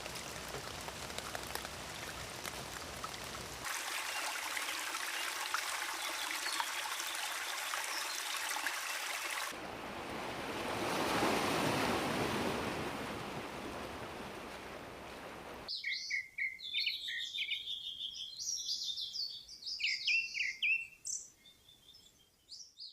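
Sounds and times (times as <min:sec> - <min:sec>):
small birds chirping: 0:00.0 - 0:09.4, 0:15.7 - 0:22.9
rain patter with drips: 0:00.0 - 0:09.6
rushing water: 0:00.0 - 0:15.7.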